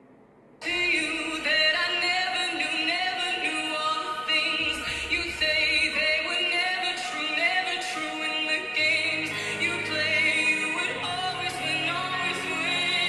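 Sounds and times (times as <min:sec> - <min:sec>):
woman singing: 0:00.6 - 0:13.0
backing music: 0:04.6 - 0:13.0.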